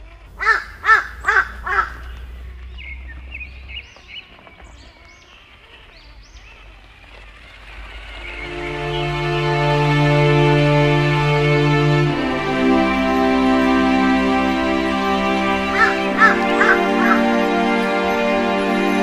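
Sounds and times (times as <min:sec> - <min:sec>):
small birds chirping: 0:00.2 - 0:08.5
harsh bird caws: 0:00.4 - 0:02.3.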